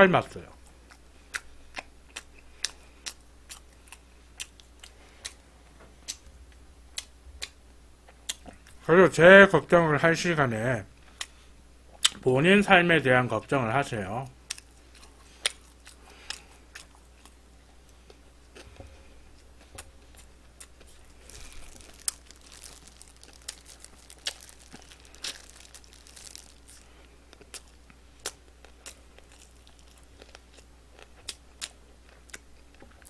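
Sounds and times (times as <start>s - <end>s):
crunchy chewing of fried chicken: 0.5s - 6.3s, 14.4s - 33.0s.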